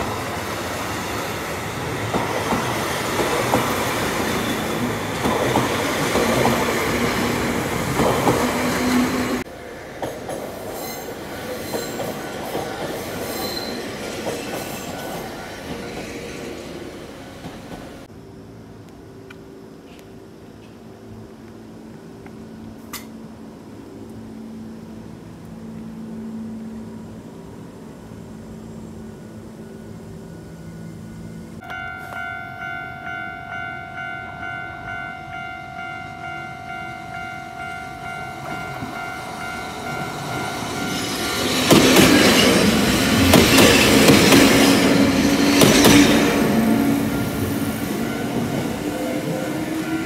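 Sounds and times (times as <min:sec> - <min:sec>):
electric train humming: 0:00.0 - 0:50.0
level crossing warning bell: 0:31.6 - 0:44.4, 0:47.0 - 0:50.0
train wheels clattering over rail joints: 0:41.0 - 0:46.6.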